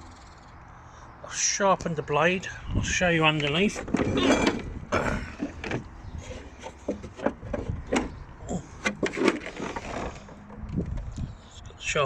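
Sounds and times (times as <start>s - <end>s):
lawnmower knocks and clunks: 3.7s - 5.9s, 6.6s - 8.2s.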